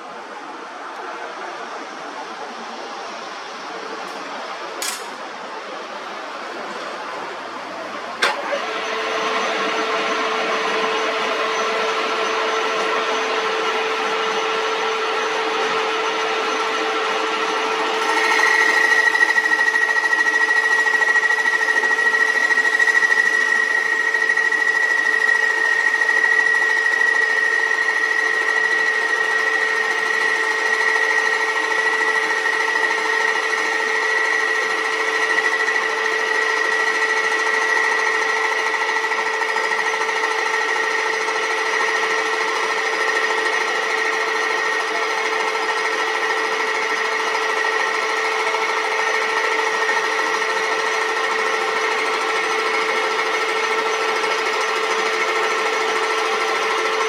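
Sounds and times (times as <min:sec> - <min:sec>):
metal lathe whining and rattling: 0:08.1 - 0:57.0.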